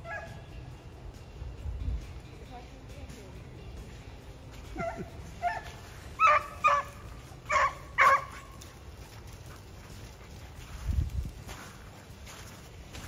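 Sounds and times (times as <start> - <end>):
dogs barking: 0.0 - 0.4, 4.7 - 8.8.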